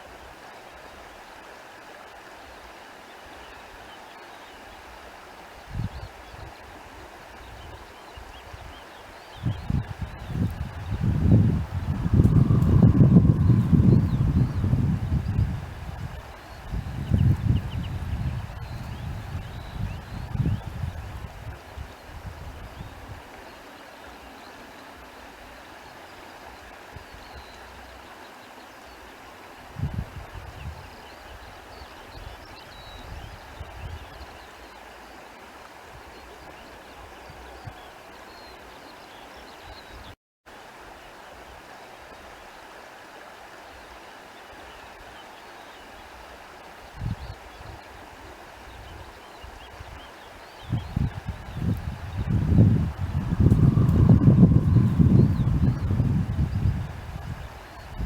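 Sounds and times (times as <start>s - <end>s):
steady rushing noise: 52.4s - 57.3s.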